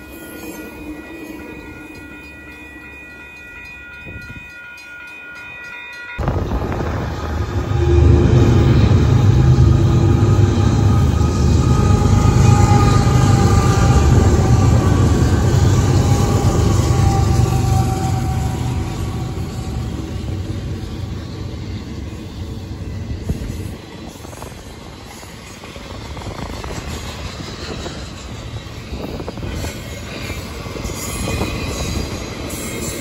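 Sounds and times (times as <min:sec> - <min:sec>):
locomotive engine rumble: 0:06.2 - 0:23.4
train wheels clattering on rails: 0:08.8 - 0:33.0.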